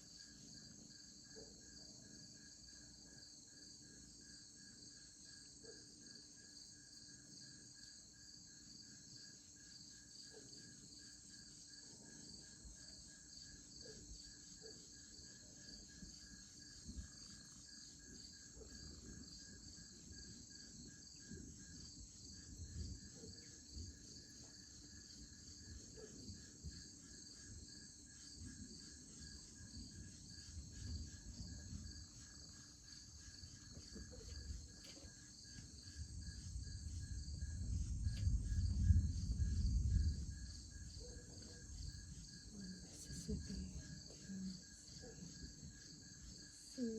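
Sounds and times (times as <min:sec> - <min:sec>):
insects chorus: 0:00.0 - 0:46.9
faint low rumbling and thumps: 0:26.2 - 0:46.0.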